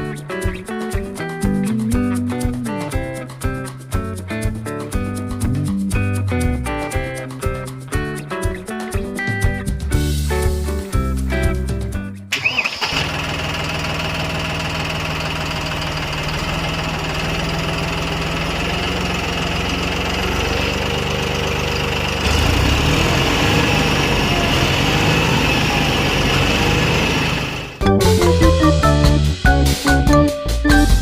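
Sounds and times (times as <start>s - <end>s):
tractor engine running: 12.3s - 30.1s.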